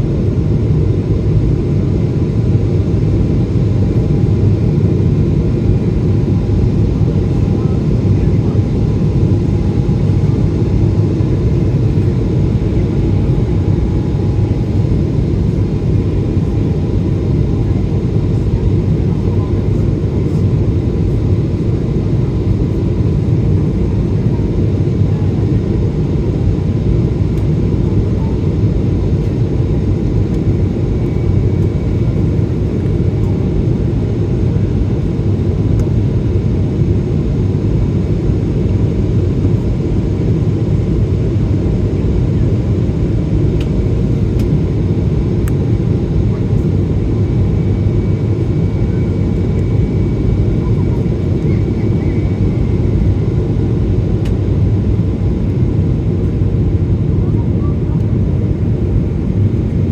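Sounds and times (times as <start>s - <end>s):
airplane cabin roar: 0.0s - 59.9s.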